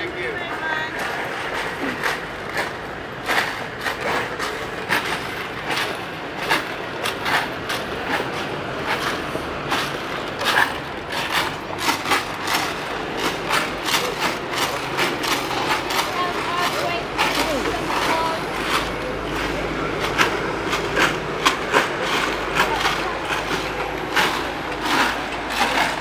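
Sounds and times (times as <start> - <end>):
busy street noise: 0.0 - 26.0
sharp clicks and knocks: 1.0 - 26.0.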